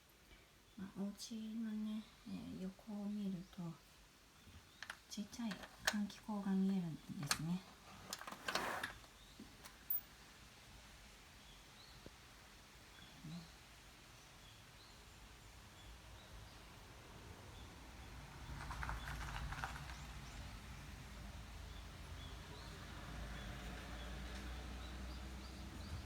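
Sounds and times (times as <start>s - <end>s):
brief rustle: 7.2s - 10.0s, 18.6s - 20.4s.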